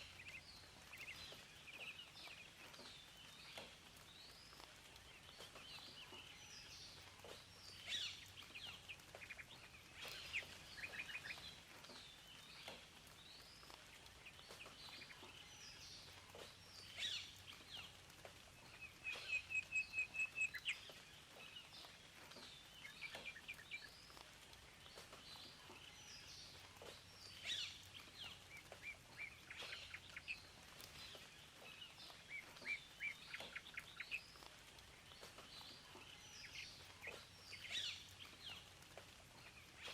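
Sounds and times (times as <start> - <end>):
faint steady hiss: 0.0 - 39.9
songbirds chirping and calling: 0.0 - 39.9.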